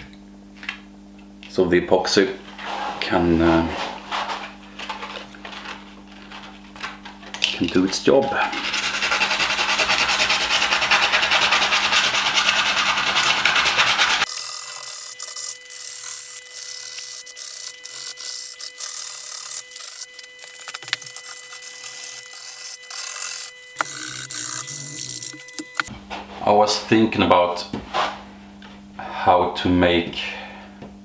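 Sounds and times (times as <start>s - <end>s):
sanding disc scrubbing stone: 8.1s - 25.9s.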